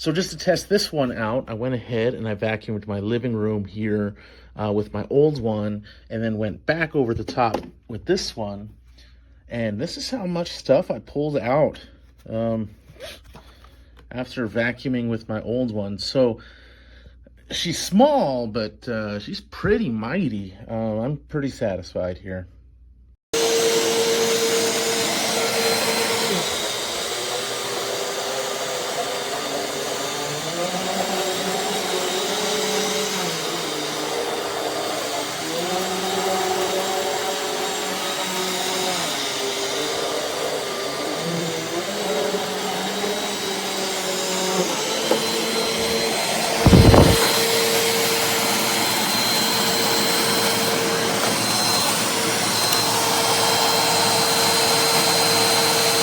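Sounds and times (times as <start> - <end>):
vacuum cleaner running: 23.3 - 56.0
loud thump: 46.6 - 47.4.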